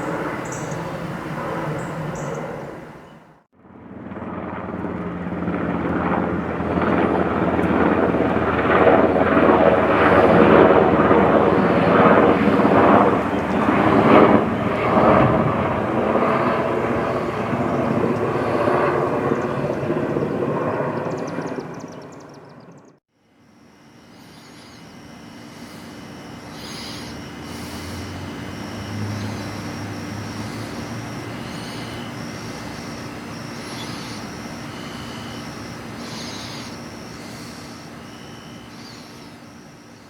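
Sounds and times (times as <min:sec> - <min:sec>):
aircraft flying past: 0:00.0 - 0:23.0, 0:24.2 - 0:40.0.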